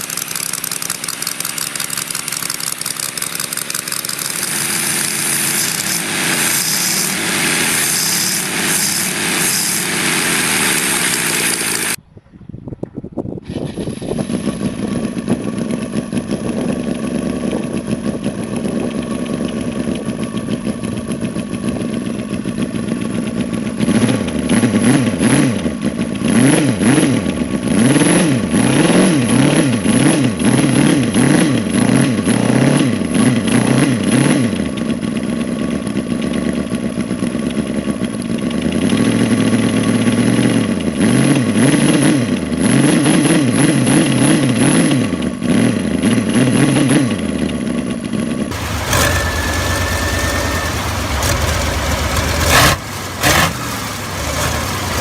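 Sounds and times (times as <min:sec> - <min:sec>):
engine idling and revving: 0:00.0 - 0:12.0, 0:13.8 - 0:55.0.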